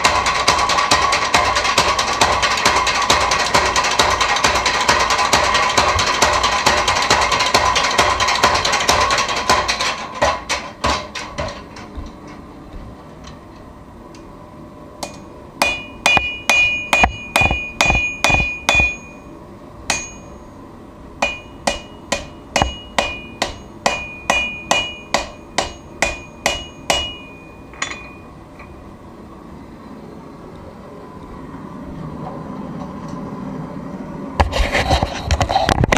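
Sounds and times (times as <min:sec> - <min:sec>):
hammer striking steel on anvil: 0:15.0 - 0:19.3, 0:19.9 - 0:20.5, 0:21.2 - 0:28.8.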